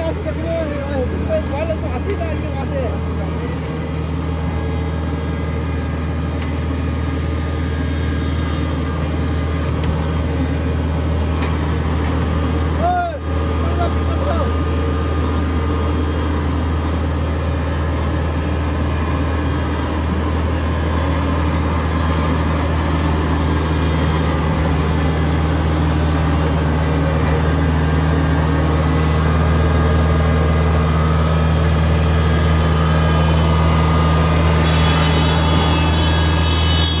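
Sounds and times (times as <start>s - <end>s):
high whine: 0.0s - 37.0s
tractor diesel engine running: 0.0s - 37.0s.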